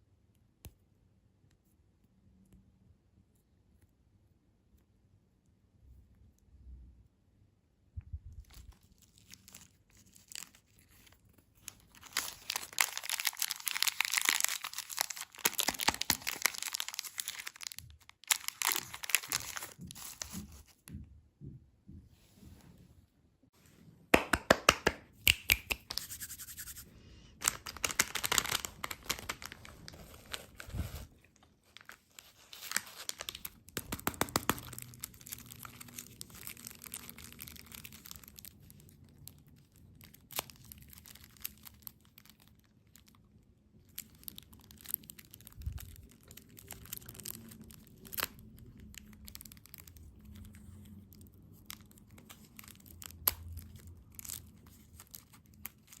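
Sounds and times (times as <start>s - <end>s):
candy wrappers crinkling: 8.4s - 20.7s, 27.4s - 56.0s.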